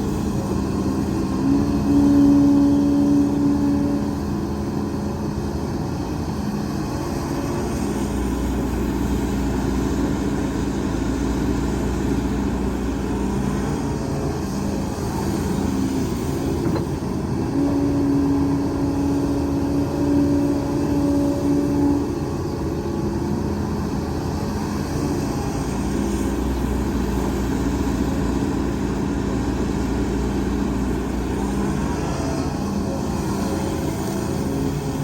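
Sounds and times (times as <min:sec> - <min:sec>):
heavy diesel machinery running: 0:00.0 - 0:35.0.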